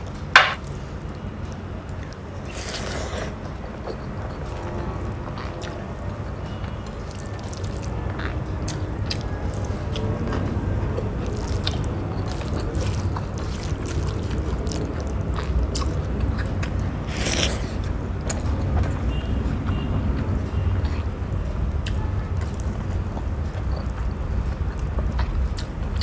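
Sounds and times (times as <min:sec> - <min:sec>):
wet chewing clicks: 0:06.6 - 0:26.0.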